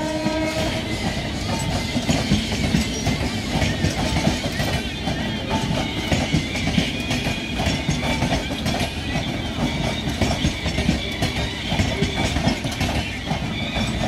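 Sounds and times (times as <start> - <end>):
high wheel squeal: 0.0 - 14.0
train wheels clattering: 0.0 - 14.0.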